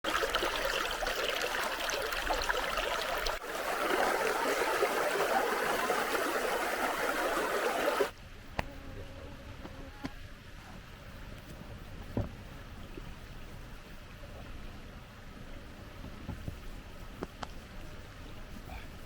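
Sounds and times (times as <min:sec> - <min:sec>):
stream water rushing: 0:00.0 - 0:08.1.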